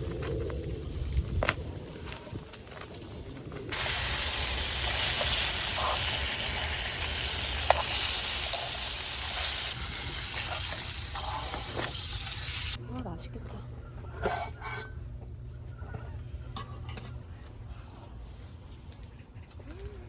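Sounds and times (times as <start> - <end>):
steady hiss: 3.7 - 12.8.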